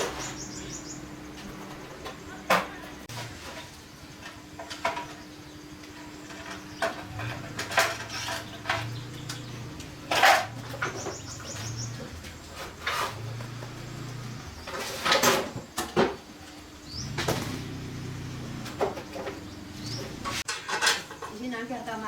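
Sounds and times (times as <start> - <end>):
metal tools clinking: 7.0 - 15.5.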